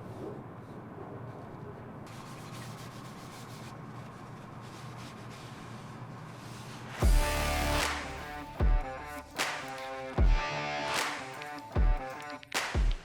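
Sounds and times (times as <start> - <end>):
hand sanding wood: 2.1 - 8.5
music: 7.0 - 13.0.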